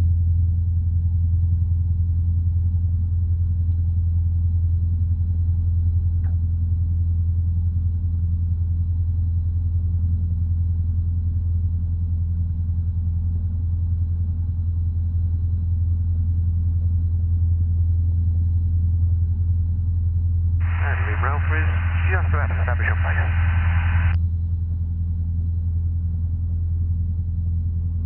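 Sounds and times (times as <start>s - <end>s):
aircraft piston engine droning: 20.6s - 24.2s.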